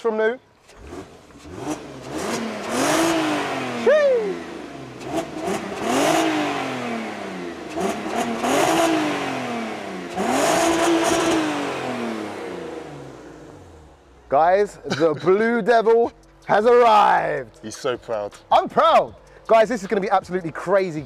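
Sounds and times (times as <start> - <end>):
car engine revving: 0.6 - 14.8.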